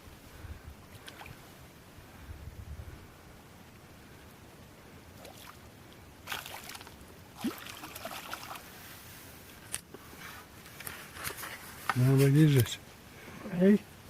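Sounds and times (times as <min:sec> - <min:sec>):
water splashing and trickling: 0:00.9 - 0:01.6, 0:05.1 - 0:09.1.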